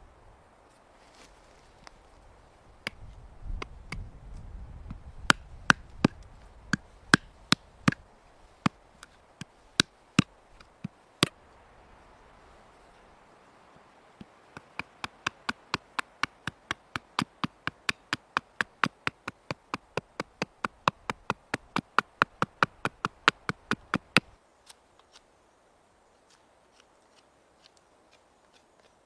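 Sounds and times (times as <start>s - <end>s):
sharp taps: 14.2s - 24.3s.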